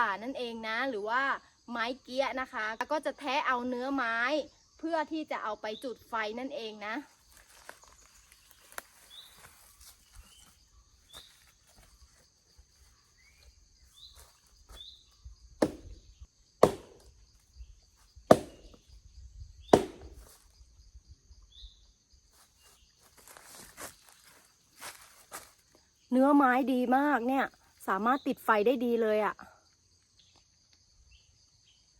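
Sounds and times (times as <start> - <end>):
axe chopping wood: 15.6 - 17.2, 18.3 - 18.8, 19.7 - 20.4
light knocks on wood: 18.3 - 18.8, 19.8 - 20.3.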